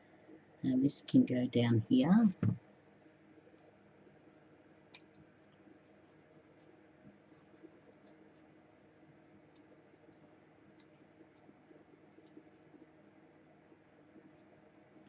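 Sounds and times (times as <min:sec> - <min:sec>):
paper ticks and scratches: 0:04.9 - 0:15.0.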